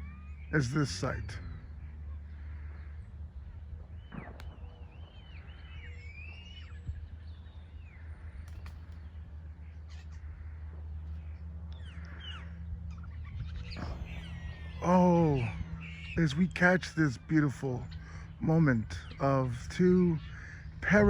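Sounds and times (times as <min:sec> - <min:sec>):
steady low hum: 0:00.0 - 0:21.0
bird singing whistled notes: 0:04.0 - 0:08.0, 0:13.0 - 0:20.8.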